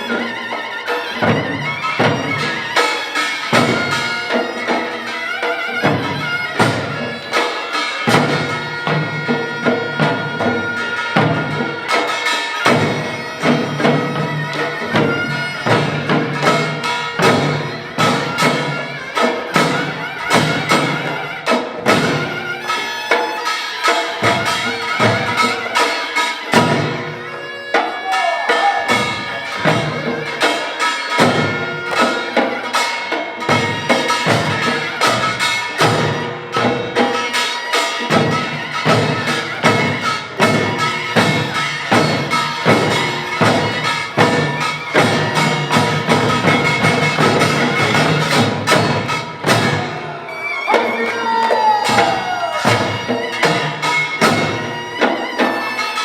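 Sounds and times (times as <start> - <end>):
drum strokes: 0.0 - 56.0
piercing reed melody: 27.7 - 56.0.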